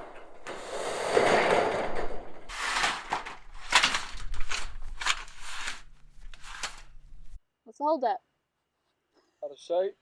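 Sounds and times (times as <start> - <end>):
metal sheets scraping and rattling: 0.0 - 7.4.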